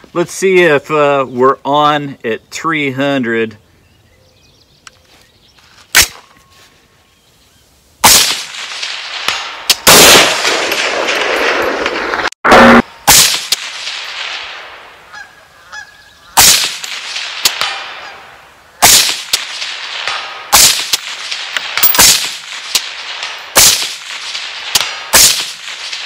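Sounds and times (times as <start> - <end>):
rifle shots with echo: 8.0 - 15.2, 16.4 - 26.0.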